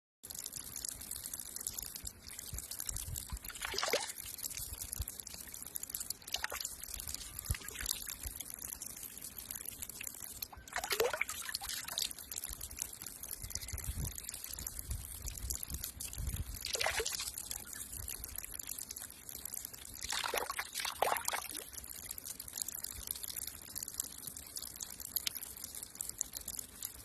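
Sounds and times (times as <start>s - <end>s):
water pouring and trickling: 0.2s - 27.0s
water splashing: 0.3s - 21.8s.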